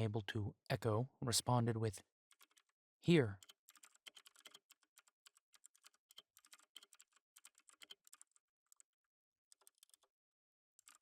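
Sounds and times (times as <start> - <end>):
computer keyboard typing: 3.4 - 8.9, 9.5 - 10.1, 10.8 - 11.0.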